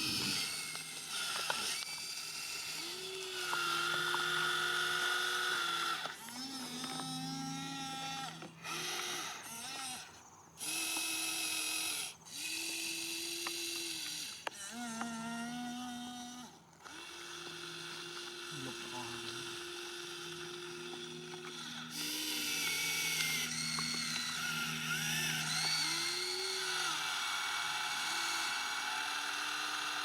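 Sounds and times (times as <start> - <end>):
toy electric motors whining: 0.0 - 30.0.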